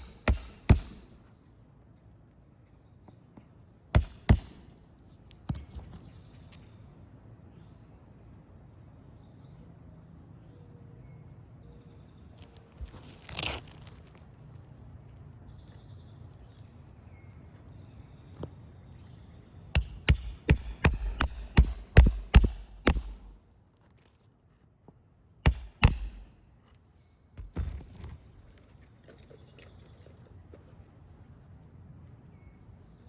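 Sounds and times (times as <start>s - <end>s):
hammer blows on shingles: 0.0s - 1.3s, 4.0s - 4.8s, 19.8s - 23.4s, 25.4s - 26.4s
brief rustle: 12.4s - 14.3s.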